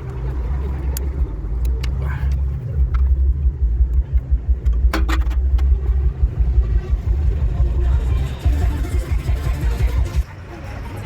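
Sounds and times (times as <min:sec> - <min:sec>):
car rumbling on the move: 0:00.0 - 0:11.0
sharp clicks and knocks: 0:00.9 - 0:05.9.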